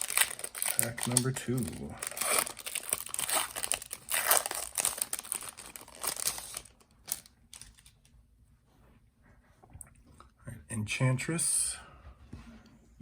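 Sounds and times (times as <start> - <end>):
card wrapper crinkling and tearing: 0.0 - 8.0.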